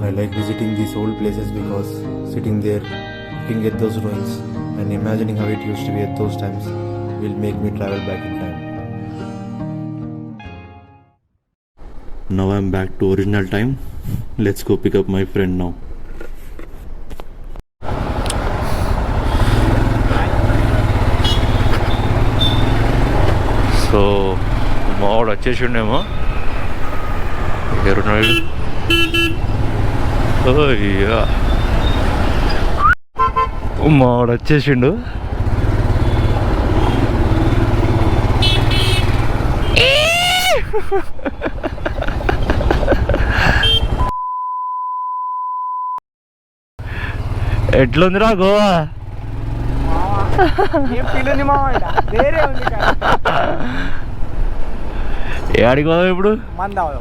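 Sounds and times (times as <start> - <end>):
motorcycle engine running: 17.8 - 25.1, 35.0 - 39.8, 46.8 - 48.2, 48.8 - 52.4
electronic censor bleep: 44.0 - 46.0.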